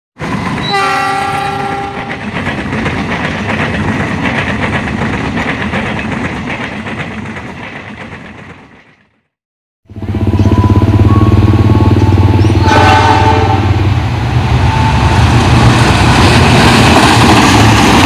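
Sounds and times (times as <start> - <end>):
train coaches clattering on rails: 0.2 - 9.2, 10.3 - 18.0
locomotive horn chord: 0.7 - 2.1, 9.9 - 14.0.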